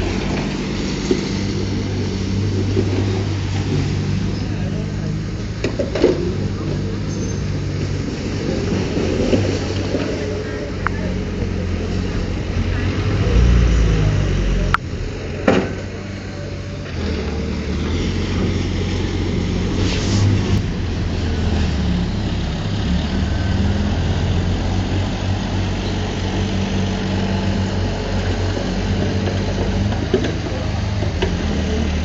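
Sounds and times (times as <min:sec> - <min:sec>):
diesel engine droning: 0:00.0 - 0:32.0.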